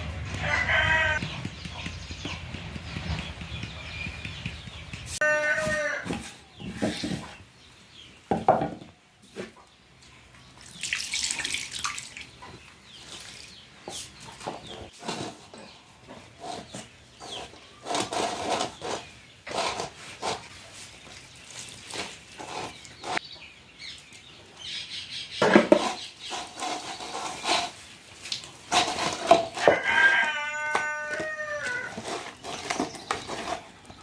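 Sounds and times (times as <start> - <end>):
rooster crowing: 0.3 - 1.2, 5.2 - 6.1, 29.6 - 32.0.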